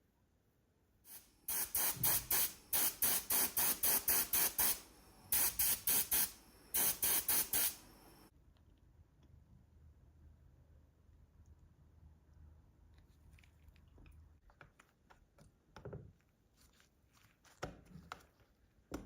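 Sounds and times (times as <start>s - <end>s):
hissing spray bursts: 1.1s - 8.3s.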